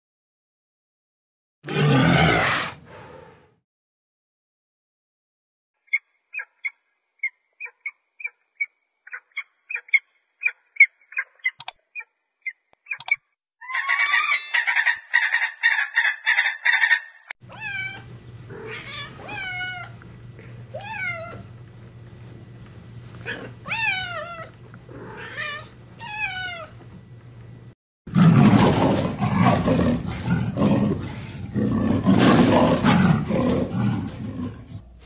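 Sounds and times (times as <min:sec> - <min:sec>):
falcon chirping and cackling: 0:05.9 - 0:17.3
low steady hum: 0:17.4 - 0:27.8
cat meowing: 0:17.5 - 0:20.0, 0:20.7 - 0:21.5, 0:23.2 - 0:26.8.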